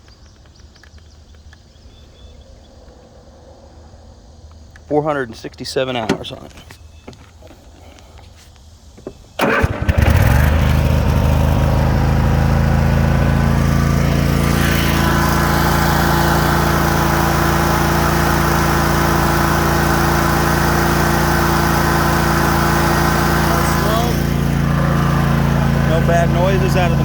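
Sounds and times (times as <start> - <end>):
engine starter cranking: 9.2 - 27.0
mower engine running: 9.4 - 27.0.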